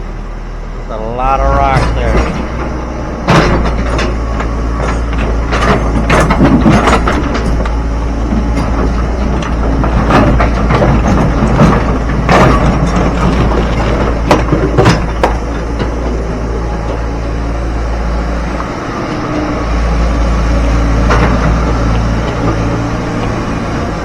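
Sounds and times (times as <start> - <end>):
diesel engine running: 0.0 - 24.0
rocks clattering and banging: 1.6 - 17.4, 20.8 - 23.5.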